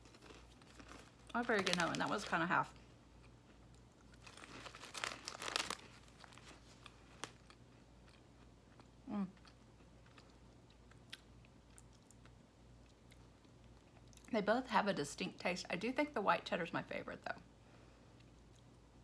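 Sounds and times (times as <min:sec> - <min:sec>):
cracker crunching: 0:00.0 - 0:14.3
chewing with small clicks: 0:06.8 - 0:14.3, 0:18.1 - 0:18.8.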